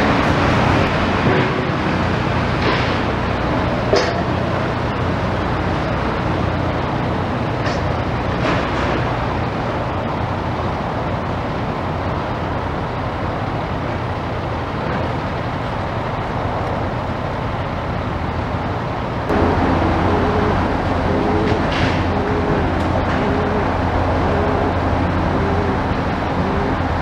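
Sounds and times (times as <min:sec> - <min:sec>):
rumble of motor engines: 0:00.0 - 0:27.0
near engine hum wavering pitch: 0:19.3 - 0:27.0.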